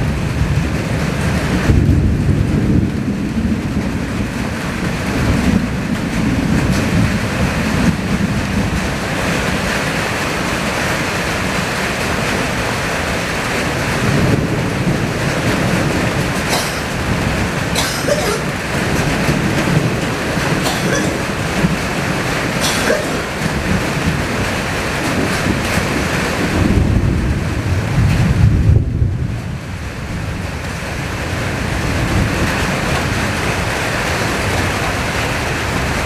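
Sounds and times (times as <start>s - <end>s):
heavy rain: 0.0s - 36.0s
strong wind gusting: 0.0s - 36.0s.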